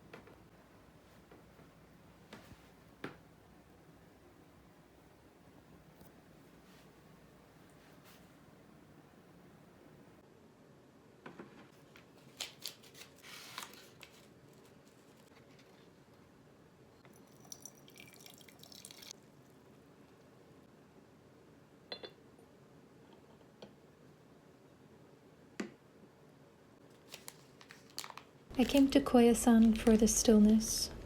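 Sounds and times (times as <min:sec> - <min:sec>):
faint water drips: 0:17.0 - 0:19.2
water trickling: 0:17.1 - 0:19.1.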